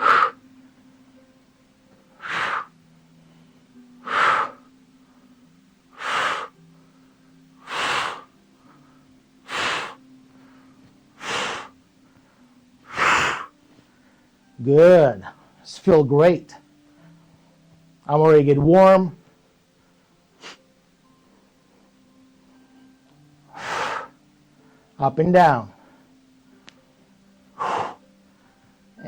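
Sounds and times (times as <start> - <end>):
man exhaling forcefully: 0.0 - 0.4, 2.2 - 2.7, 4.0 - 4.6, 6.0 - 6.6, 7.7 - 8.3, 9.5 - 10.0, 11.2 - 11.7, 12.9 - 13.5, 23.5 - 24.2, 27.6 - 28.0.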